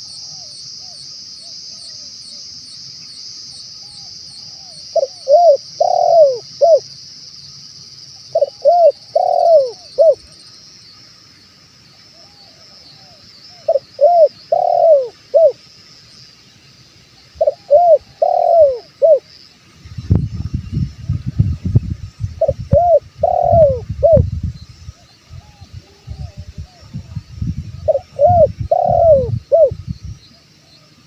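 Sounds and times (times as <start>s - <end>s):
insect hiss: 0.0s - 31.0s
dove cooing: 4.5s - 6.8s, 8.4s - 10.3s, 12.2s - 15.6s, 17.4s - 19.3s, 22.4s - 24.3s, 27.8s - 29.8s.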